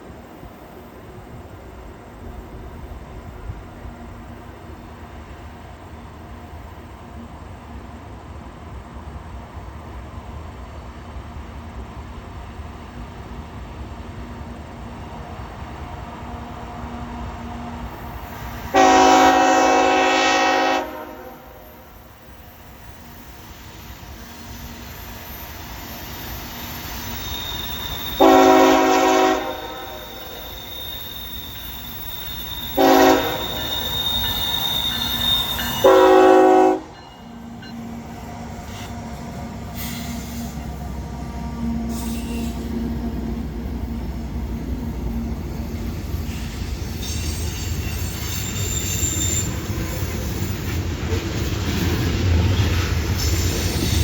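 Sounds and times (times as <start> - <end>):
locomotive horn blasts: 18.7 - 21.8, 28.2 - 30.5, 32.8 - 34.1, 35.0 - 37.0
high wheel squeal: 21.5 - 40.8, 41.8 - 43.0, 44.5 - 50.8.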